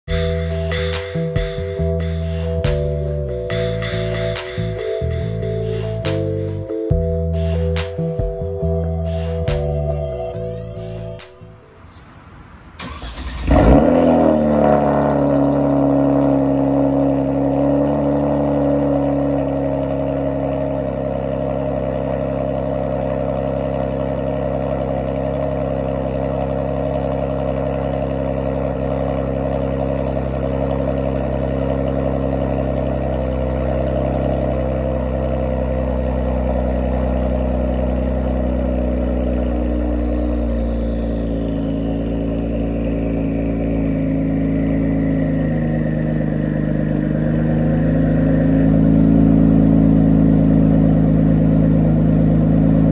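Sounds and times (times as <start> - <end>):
car engine starting and idling: 0.0 - 52.9
engine cranking: 12.8 - 14.0.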